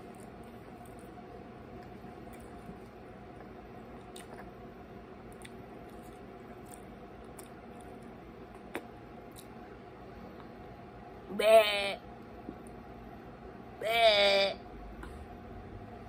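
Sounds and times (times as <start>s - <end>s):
faint chewing: 0.0s - 4.6s, 5.3s - 9.6s
low room hum: 0.0s - 16.0s.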